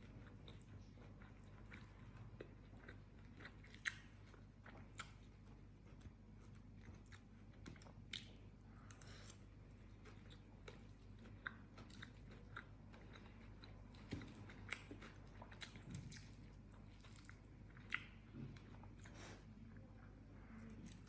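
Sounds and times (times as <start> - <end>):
chewing and crunching food: 0.0 - 21.0.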